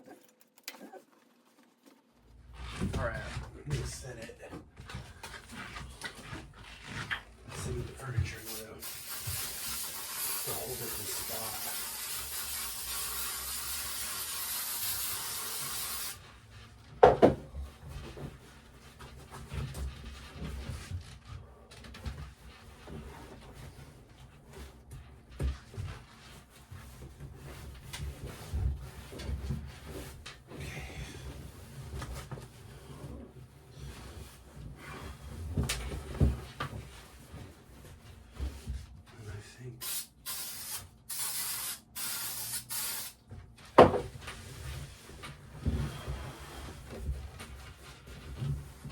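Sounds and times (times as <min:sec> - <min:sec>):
spray adhesive hissing: 0:08.4 - 0:16.2, 0:39.8 - 0:43.2
knocks and thumps: 0:17.0 - 0:18.4, 0:43.7 - 0:44.3.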